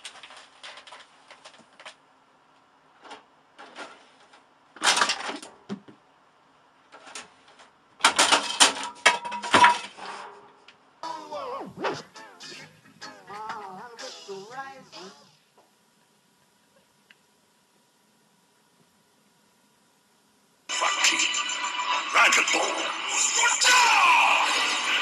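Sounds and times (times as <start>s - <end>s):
household objects clattering: 3.0s - 5.9s, 6.9s - 10.4s.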